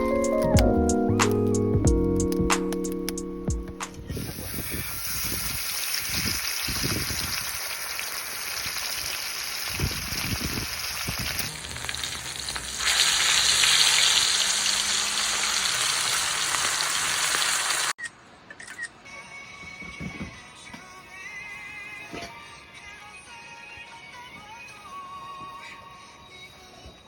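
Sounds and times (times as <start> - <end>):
meat sizzling on a griddle: 4.2 - 17.9.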